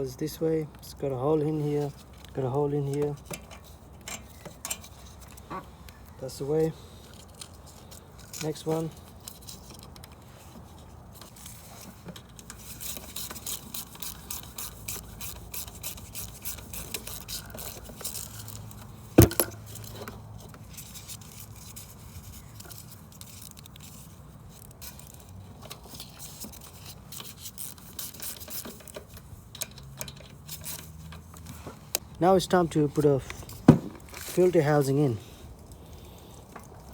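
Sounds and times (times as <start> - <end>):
metal parts clicking and scraping: 1.9 - 5.5, 7.0 - 32.0.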